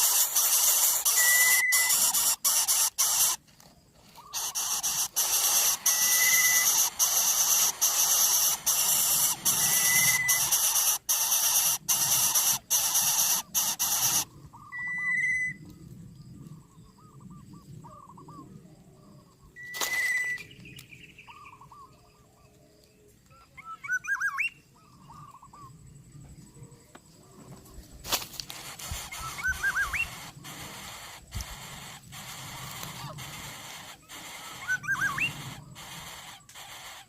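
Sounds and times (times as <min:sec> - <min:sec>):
nestlings hissing begging calls: 0:00.0 - 0:03.4, 0:04.2 - 0:14.3, 0:28.5 - 0:37.0
high whistled notes: 0:01.1 - 0:02.0
soft bird chirps: 0:19.2 - 0:25.9, 0:28.7 - 0:37.0.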